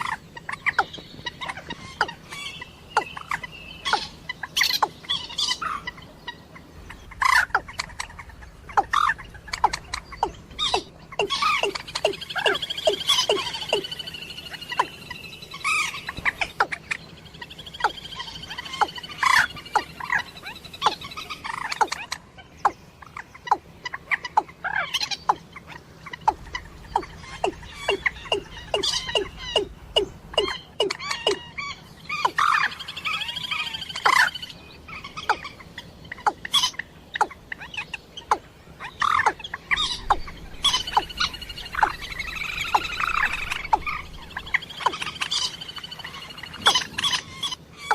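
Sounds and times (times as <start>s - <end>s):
rattling bird trills: 0.0s - 47.9s
waterbird clucking calls: 6.9s - 15.1s, 17.7s - 47.9s.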